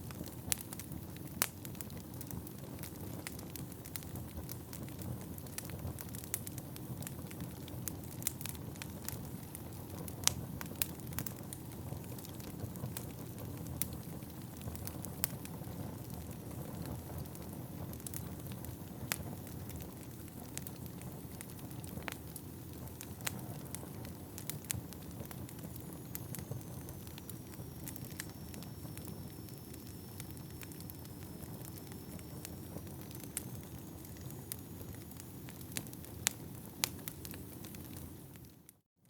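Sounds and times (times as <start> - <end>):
wood fire crackling: 0.0 - 38.8
faint high whistle: 25.7 - 35.5.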